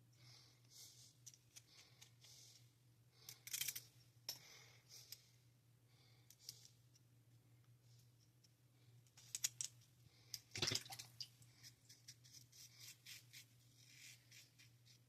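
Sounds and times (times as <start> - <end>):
razor scraping strokes: 11.6 - 15.0.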